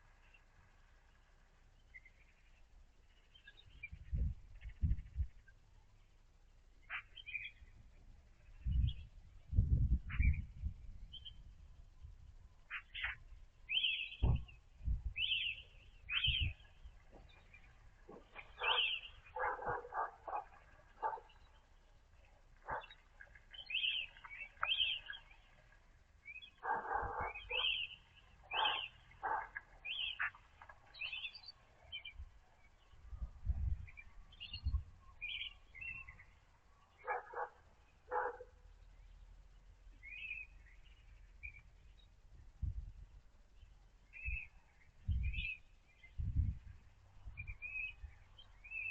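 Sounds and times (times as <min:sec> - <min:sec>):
small birds chirping: 0:00.0 - 0:48.9
harsh bird calls: 0:06.8 - 0:07.6, 0:12.7 - 0:14.6, 0:15.2 - 0:21.6, 0:22.6 - 0:25.7, 0:26.3 - 0:32.2
low thumps: 0:14.2 - 0:15.0.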